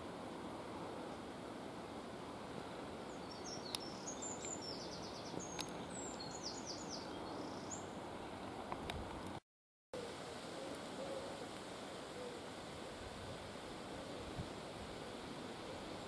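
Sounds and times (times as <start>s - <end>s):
outdoor background noise: 0.0s - 9.4s, 10.0s - 16.0s
small bird chirping and trilling: 3.1s - 7.9s.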